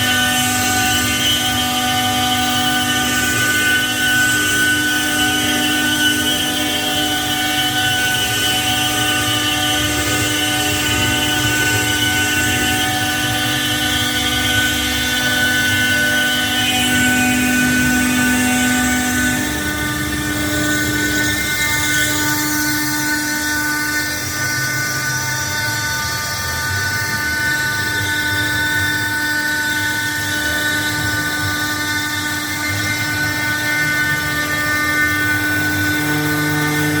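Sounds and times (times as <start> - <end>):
rough grinding noise: 0.0 - 24.4
milling spindle whine: 0.0 - 37.0.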